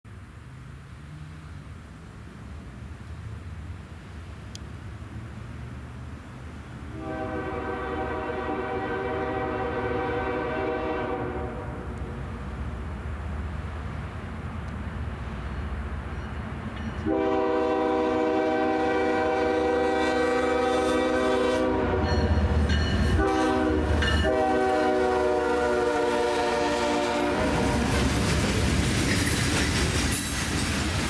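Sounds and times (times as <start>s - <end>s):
diesel locomotive engine rumble: 0.1s - 31.0s
freight cars rolling by: 0.2s - 31.0s
train air horn: 6.9s - 12.1s, 17.0s - 22.5s, 23.1s - 28.3s.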